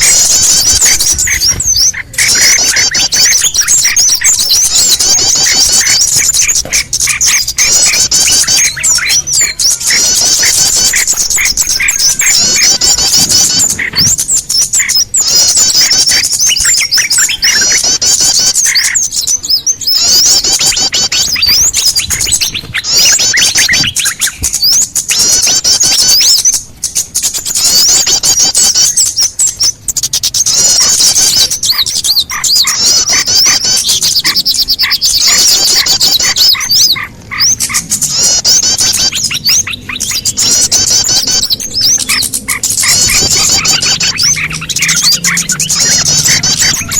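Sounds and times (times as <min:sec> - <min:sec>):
low whistled bird notes: 0:00.0 - 0:46.9
small birds chirping and trilling: 0:00.0 - 0:46.9.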